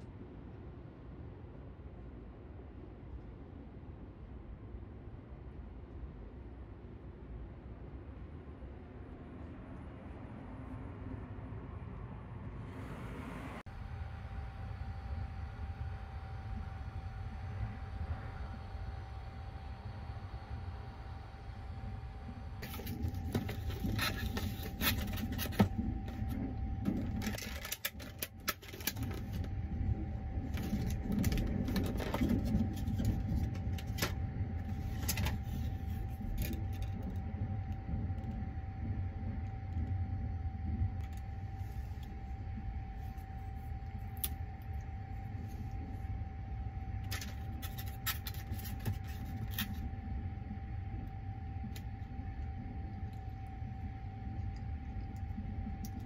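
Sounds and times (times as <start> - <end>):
faint steady hum: 0.0 - 56.0
wrapping crinkling and rustling: 22.6 - 29.5, 30.4 - 37.2, 47.0 - 49.9.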